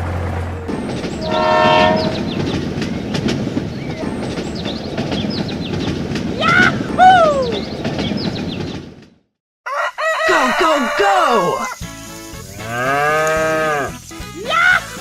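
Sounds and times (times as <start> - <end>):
horn blast: 1.2 - 2.5
small birds chirping: 2.0 - 6.6, 7.3 - 8.9
rooster crowing: 9.7 - 11.8.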